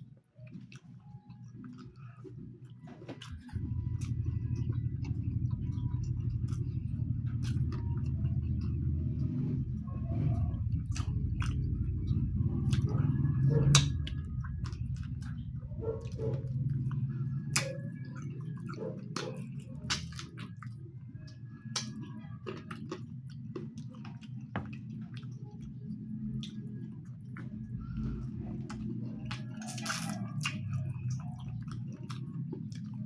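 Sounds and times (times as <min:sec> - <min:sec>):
chewing and mouth sounds: 0:00.4 - 0:33.0
low rumble: 0:03.3 - 0:18.6, 0:24.7 - 0:29.6.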